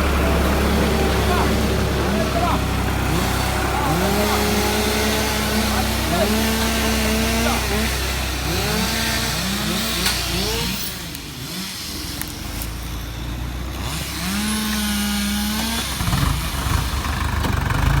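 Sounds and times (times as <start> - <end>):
rough low rumble: 0.0 - 7.4
vehicle engine revving: 0.0 - 18.0.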